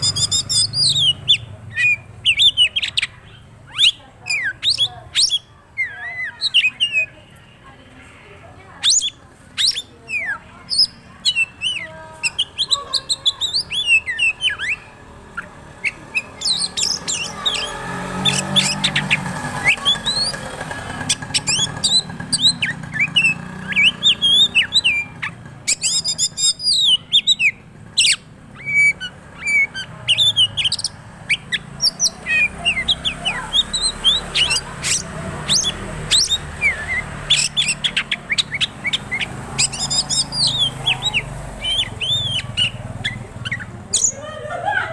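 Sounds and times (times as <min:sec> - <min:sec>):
songbird singing varied whistles: 0:00.0 - 0:07.2, 0:08.8 - 0:44.2
scratchy bird calls: 0:00.0 - 0:44.2.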